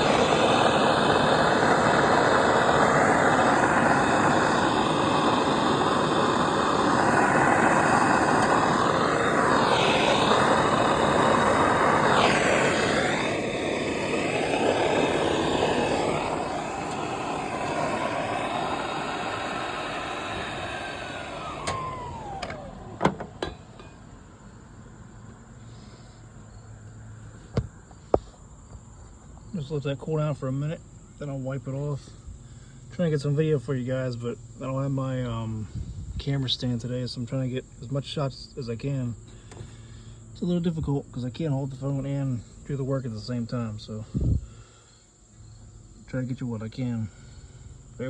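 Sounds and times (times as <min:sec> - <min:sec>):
flame turned off falling pitch: 0:00.0 - 0:25.9
gas torch burning: 0:00.0 - 0:26.6.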